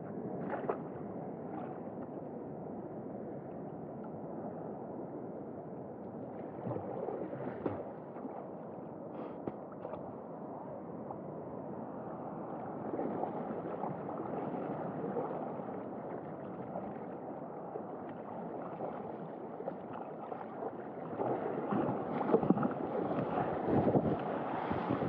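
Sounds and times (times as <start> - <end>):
wind on microphone: 21.0 - 25.0.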